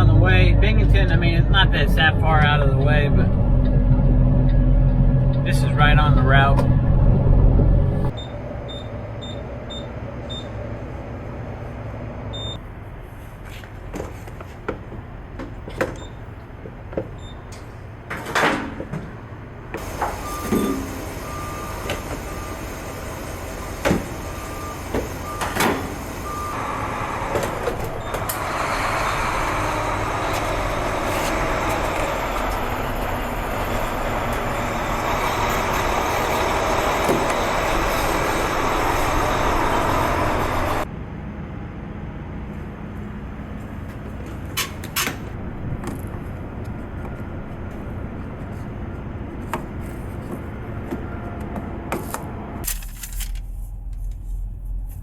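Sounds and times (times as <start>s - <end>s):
diesel truck engine idling: 0.0s - 13.1s, 19.2s - 44.6s.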